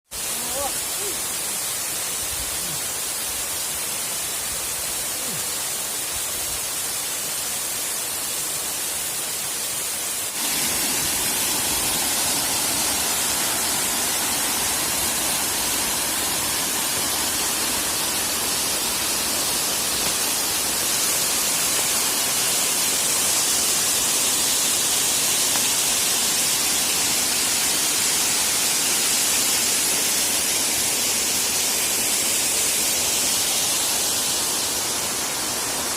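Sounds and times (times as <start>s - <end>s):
waterfall rushing: 0.2s - 35.9s.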